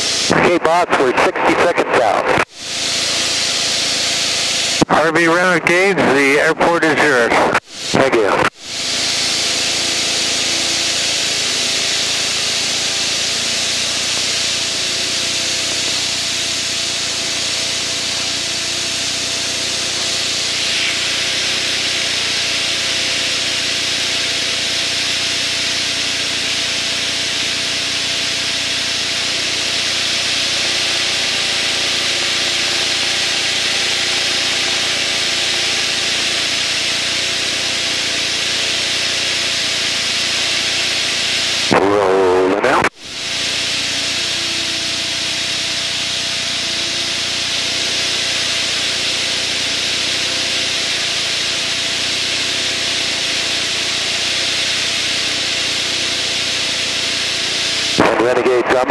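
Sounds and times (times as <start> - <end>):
plane engine and propeller drone: 0.0 - 58.9.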